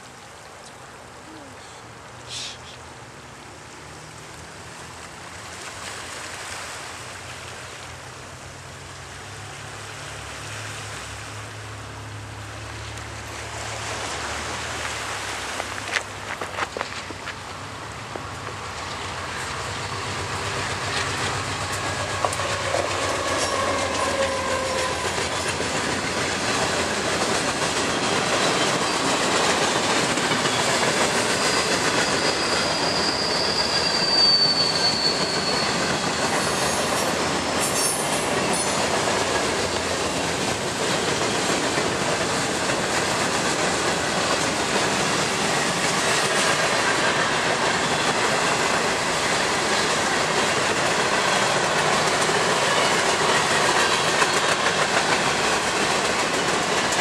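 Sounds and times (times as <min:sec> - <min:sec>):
steel wheels clattering on rails: 0:18.1 - 0:57.0
high wheel squeal: 0:21.9 - 0:25.4, 0:27.8 - 0:29.3, 0:30.4 - 0:38.9.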